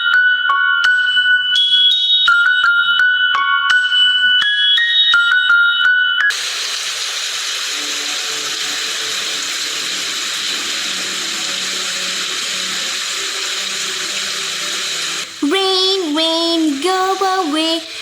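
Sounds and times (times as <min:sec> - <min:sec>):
falling rain hiss: 0:06.3 - 0:18.0.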